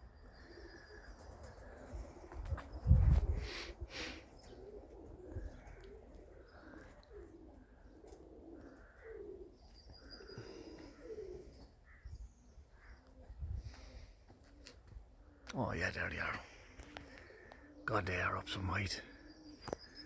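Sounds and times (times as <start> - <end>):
pigeons cooing: 0.0 - 20.0
small bird chirp: 19.2 - 20.0.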